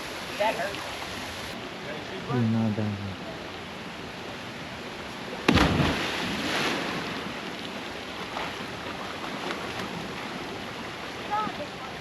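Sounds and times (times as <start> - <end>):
loud splash into water: 5.5 - 7.2.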